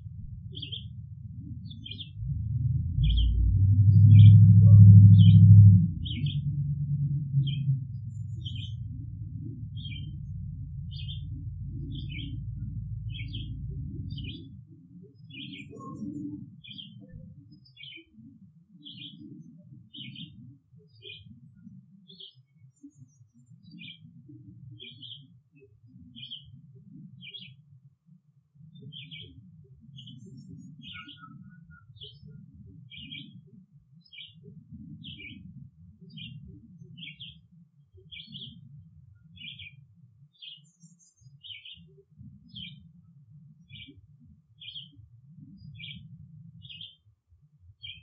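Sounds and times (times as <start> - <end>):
low rumble: 0.0 - 14.8
bird chirping: 0.0 - 27.6, 28.7 - 47.0, 47.8 - 48.0.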